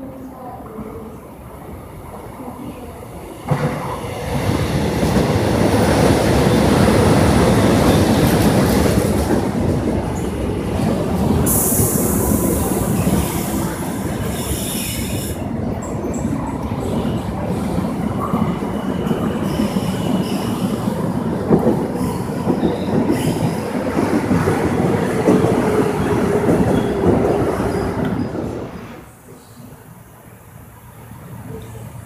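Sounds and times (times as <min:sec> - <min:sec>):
train rumble and rail clatter: 0:00.0 - 0:32.0
high hiss burst: 0:11.4 - 0:15.4.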